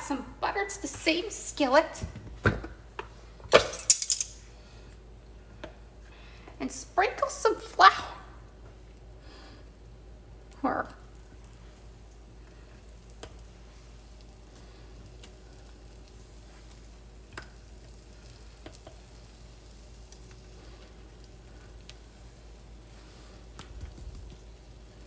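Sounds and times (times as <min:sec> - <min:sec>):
butter and flour sizzling in skillet: 0:08.7 - 0:25.0.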